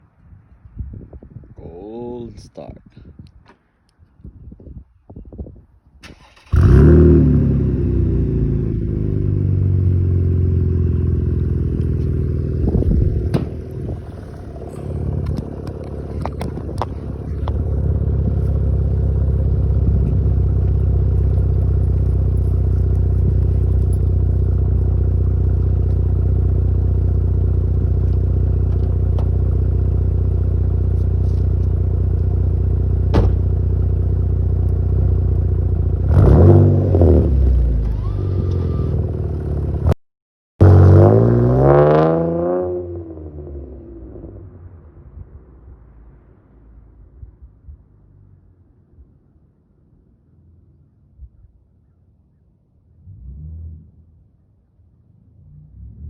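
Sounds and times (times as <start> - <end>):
car engine starting and idling: 6.0 - 40.0.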